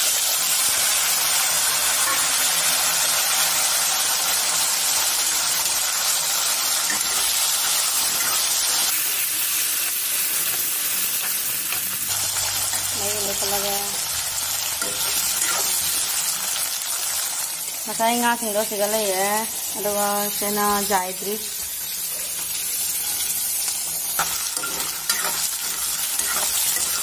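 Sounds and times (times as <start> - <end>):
food sizzling in hot oil: 0.0 - 27.0
spatula stirring in wok: 22.4 - 27.0.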